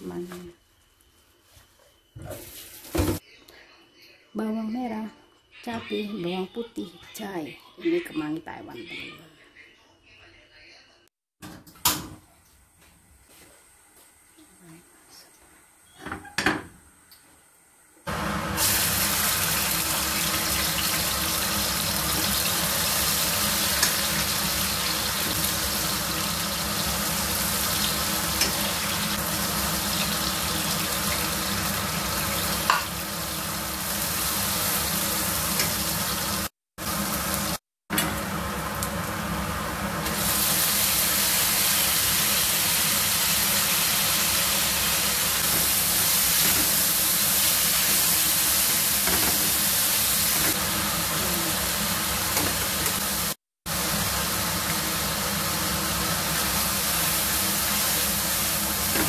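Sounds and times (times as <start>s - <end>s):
food sizzling in hot oil: 18.1s - 59.0s.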